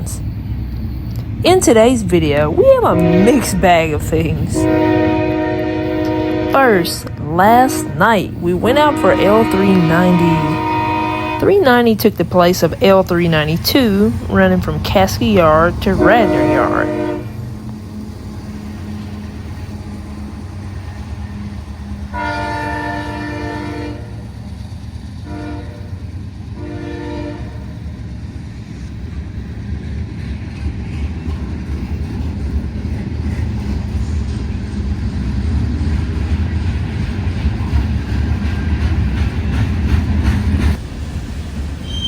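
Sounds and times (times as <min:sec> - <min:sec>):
locomotive rumble: 0:00.0 - 0:42.0
train horn blasts: 0:02.8 - 0:11.6, 0:15.5 - 0:17.5, 0:22.1 - 0:24.2, 0:25.2 - 0:26.0, 0:26.6 - 0:27.8
train wheels clacking: 0:28.7 - 0:42.0.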